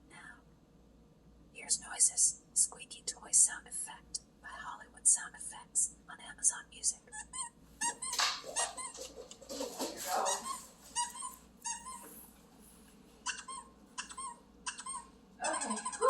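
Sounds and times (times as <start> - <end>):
short high squeaks: 10.5 - 12.2.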